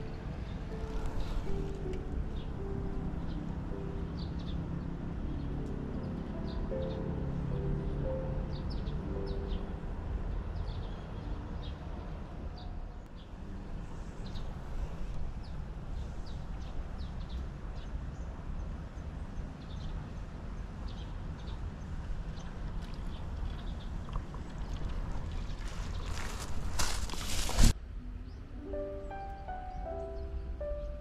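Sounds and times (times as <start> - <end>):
small birds chirping: 14.0 - 31.0.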